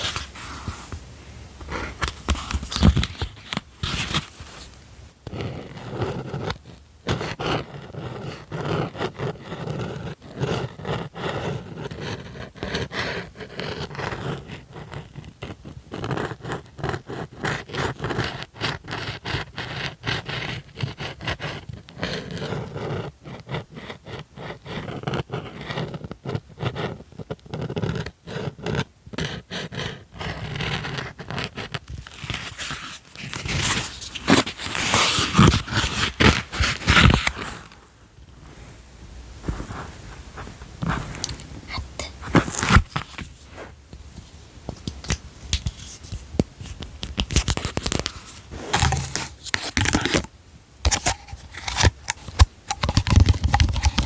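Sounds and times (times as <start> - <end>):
rapid tapping and scratching: 50.9 - 54.0.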